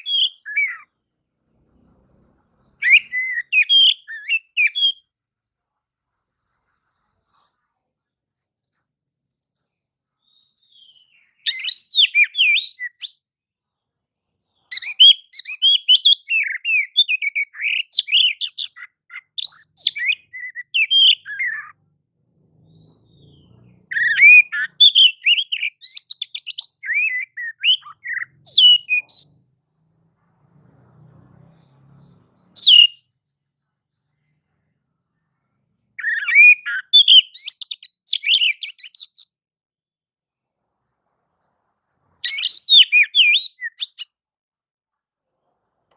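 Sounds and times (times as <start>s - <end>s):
bird singing whistles and chirps: 0.0s - 0.9s, 2.8s - 5.0s, 10.2s - 13.2s, 14.7s - 21.8s, 22.6s - 29.3s, 32.4s - 33.1s, 36.0s - 39.3s, 42.2s - 44.1s.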